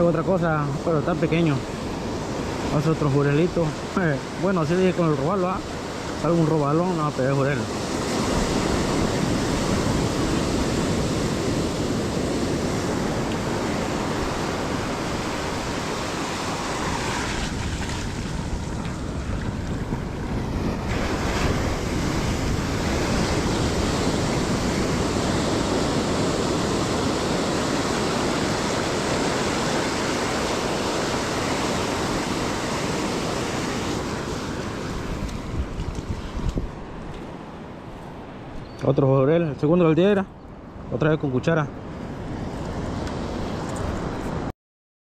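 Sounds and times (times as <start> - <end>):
surf washing onto beach: 0.0 - 38.5
wind buffeting microphone: 7.6 - 38.8.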